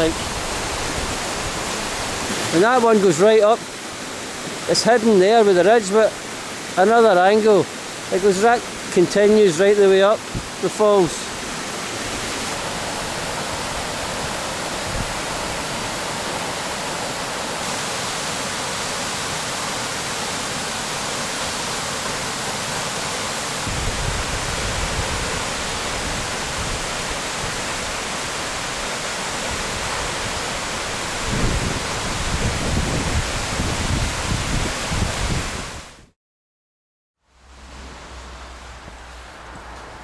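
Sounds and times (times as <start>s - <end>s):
waterfall rushing: 0.0s - 35.8s
wind buffeting microphone: 10.2s - 10.6s, 12.0s - 16.2s, 23.6s - 27.9s, 29.5s - 35.9s.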